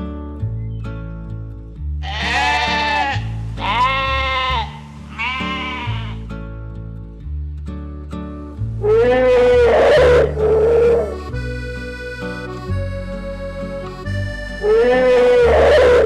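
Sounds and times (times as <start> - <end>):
background music with bass line: 0.0 - 16.0
animal calls with wavering pitch: 8.8 - 11.2, 14.6 - 16.0.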